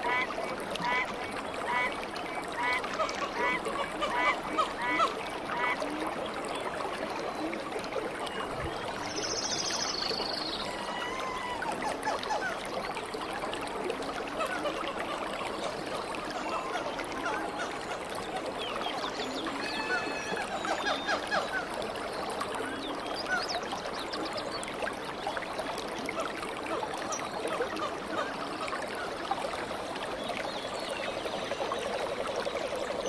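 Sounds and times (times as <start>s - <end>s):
trickling stream water: 0.0s - 33.0s.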